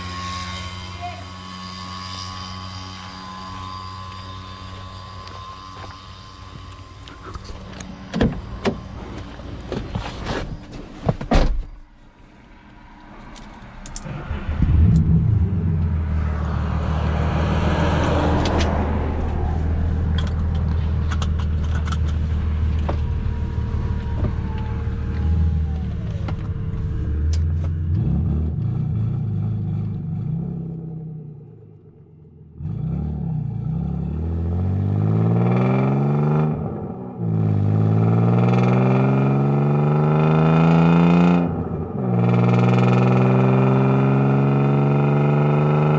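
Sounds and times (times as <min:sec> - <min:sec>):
car engine idling: 0:12.2 - 0:30.2
car engine revving: 0:12.4 - 0:45.9
car engine starting: 0:12.6 - 0:45.9.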